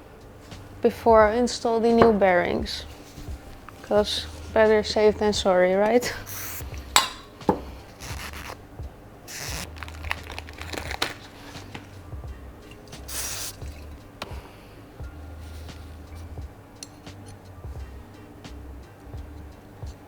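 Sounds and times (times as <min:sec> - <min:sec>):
rag rubbing and crinkling: 0:00.5 - 0:08.6, 0:09.3 - 0:14.5
short hissing bursts: 0:13.0 - 0:13.7.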